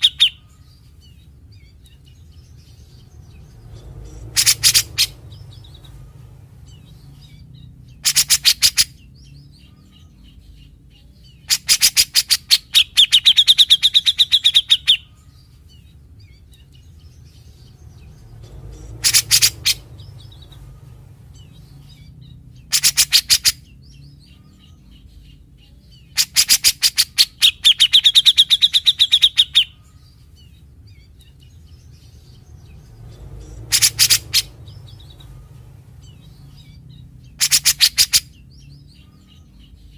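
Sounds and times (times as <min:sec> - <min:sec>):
bird rattling calls: 0:04.0 - 0:06.0, 0:08.0 - 0:08.9, 0:18.7 - 0:20.6, 0:22.6 - 0:23.6, 0:33.4 - 0:35.5, 0:37.3 - 0:38.3.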